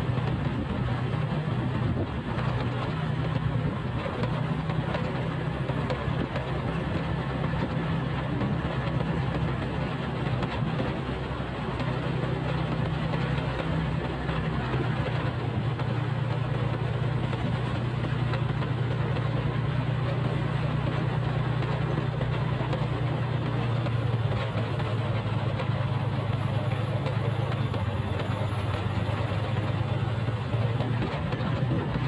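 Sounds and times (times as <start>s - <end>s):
motorcycle engine humming: 0.0s - 32.0s.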